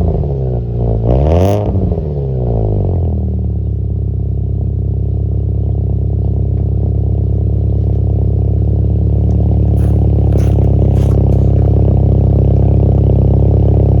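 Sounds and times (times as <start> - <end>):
car engine running: 5.8 - 14.0.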